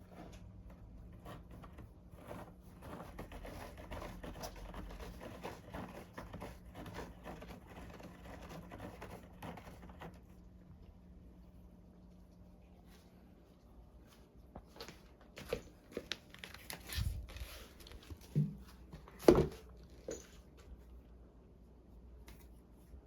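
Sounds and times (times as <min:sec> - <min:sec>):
cat scratching styrofoam: 0:00.0 - 0:10.4.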